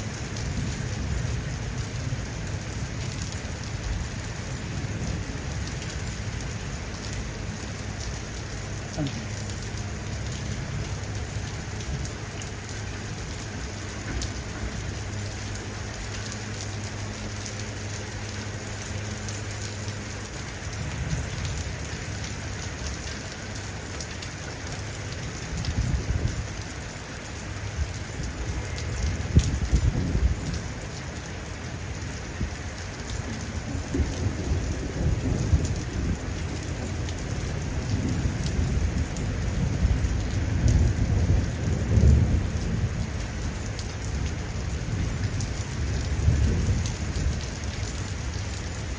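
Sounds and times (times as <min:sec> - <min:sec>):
heavy rain falling: 0:00.0 - 0:48.9
thunder rumbling: 0:28.2 - 0:31.0, 0:32.3 - 0:48.9.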